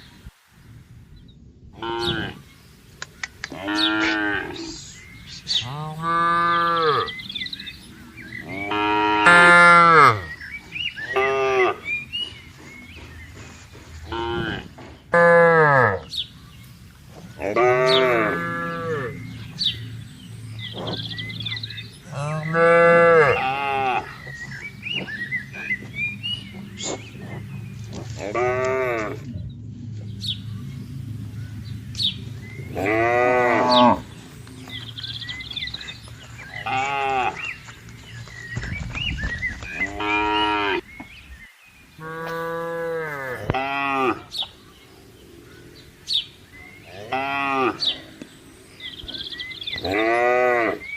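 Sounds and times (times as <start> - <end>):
cattle mooing: 1.8 - 2.4, 3.5 - 4.8, 5.5 - 7.3, 8.4 - 10.4, 11.0 - 12.0, 14.0 - 16.1, 17.4 - 19.8, 20.7 - 29.4, 32.4 - 35.9, 36.5 - 37.6, 42.0 - 44.3, 46.7 - 48.2, 49.0 - 50.9.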